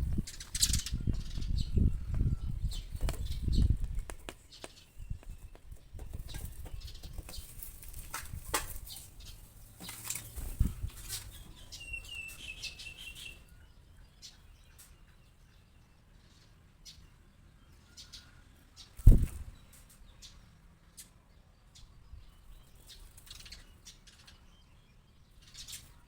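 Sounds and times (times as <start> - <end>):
bird wings fluttering: 9.8 - 11.4, 19.0 - 19.5.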